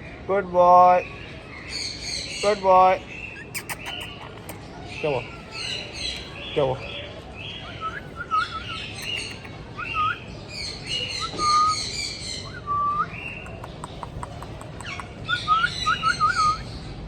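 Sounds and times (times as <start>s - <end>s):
parrot raspy chirping: 3.2s - 6.9s, 7.5s - 16.7s
parrot clicks: 9.0s - 9.6s, 13.2s - 15.2s.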